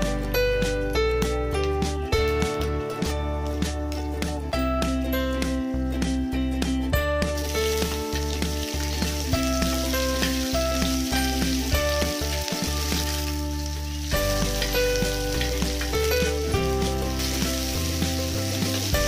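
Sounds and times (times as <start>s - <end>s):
background music with bass line: 0.0s - 19.0s
onions sizzling in hot oil: 7.4s - 19.0s.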